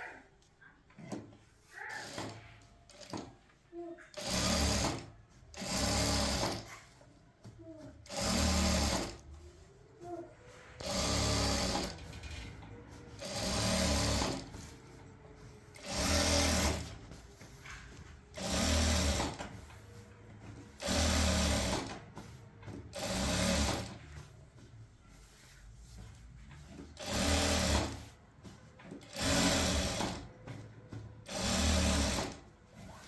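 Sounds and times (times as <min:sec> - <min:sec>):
small motor running in bursts: 0:10.8 - 0:11.9, 0:31.3 - 0:32.2.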